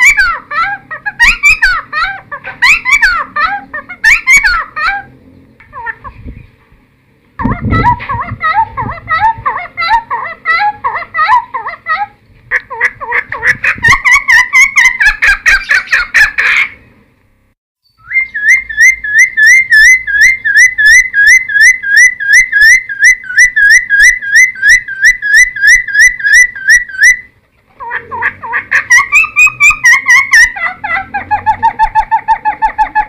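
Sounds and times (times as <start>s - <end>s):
bird singing whistles: 17.8s - 27.3s.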